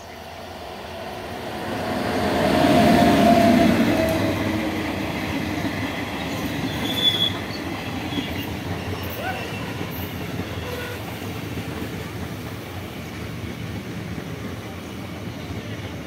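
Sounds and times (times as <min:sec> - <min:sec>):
coach wheels rumbling on rails: 0:00.0 - 0:16.0
locomotive passing with loud rush: 0:00.2 - 0:16.0.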